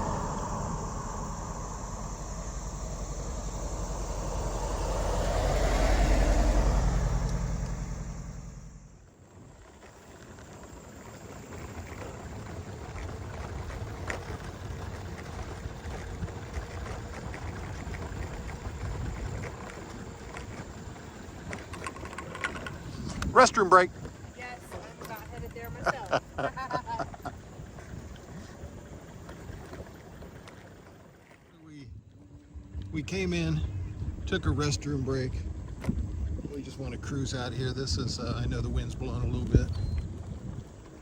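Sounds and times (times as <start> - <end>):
car driving past: 0.0 - 9.2
steady background noise: 0.0 - 41.0.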